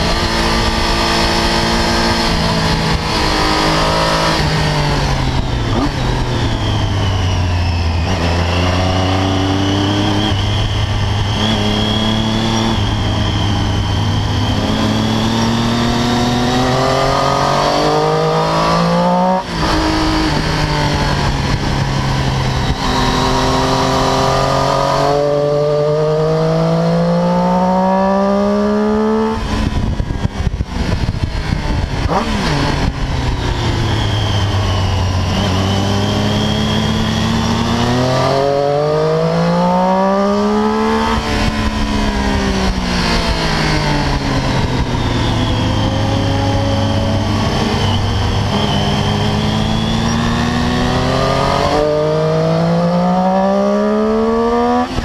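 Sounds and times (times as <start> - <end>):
motorcycle engine accelerating: 0.0 - 55.0
wind rush: 28.2 - 55.0.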